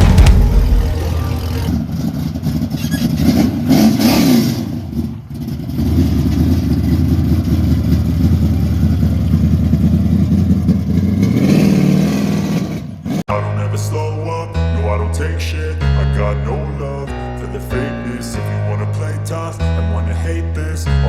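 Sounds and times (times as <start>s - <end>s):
car engine idling and revving: 0.0s - 13.2s.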